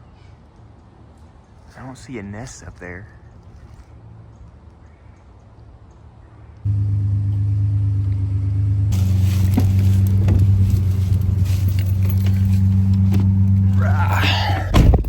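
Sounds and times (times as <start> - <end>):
car engine rumbling: 6.7 - 15.0.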